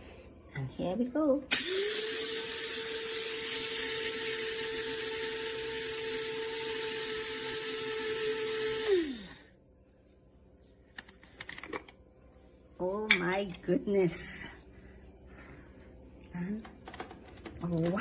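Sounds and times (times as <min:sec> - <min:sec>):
electric blade grinder whirring: 0:01.5 - 0:09.4
motor winding down: 0:01.5 - 0:09.4.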